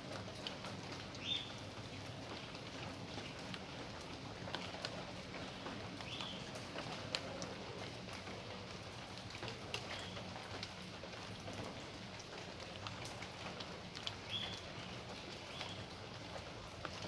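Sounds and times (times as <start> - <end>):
raindrops ticking on hard surfaces: 0.0 - 17.0
steady rain falling: 0.0 - 17.0.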